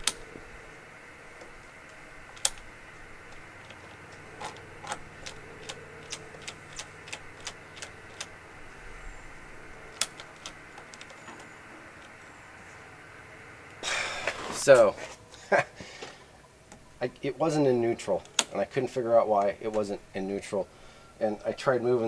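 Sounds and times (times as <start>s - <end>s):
faint steady hum: 0.0s - 22.0s
mechanical clicks and taps: 1.4s - 2.7s, 3.3s - 8.3s.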